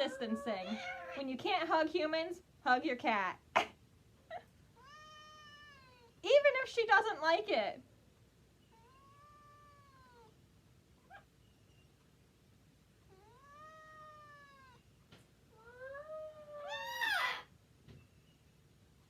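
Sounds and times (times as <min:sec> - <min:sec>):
cat yowling meows: 0:00.0 - 0:01.3, 0:13.2 - 0:14.8, 0:15.6 - 0:17.5.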